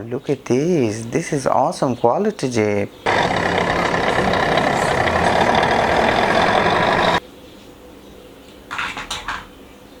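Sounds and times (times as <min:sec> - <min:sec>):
engine-like noise: 0:03.1 - 0:07.2.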